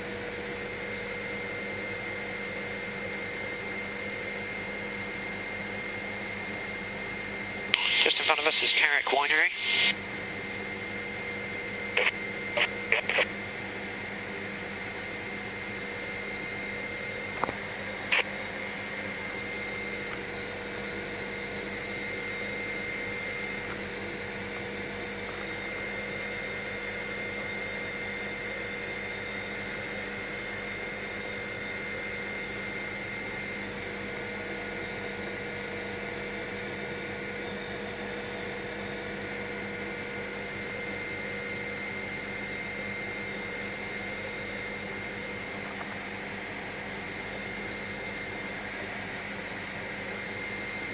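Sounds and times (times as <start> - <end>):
helicopter drone from cabin: 0.0 - 50.9
high whine: 7.7 - 10.0, 11.9 - 13.3.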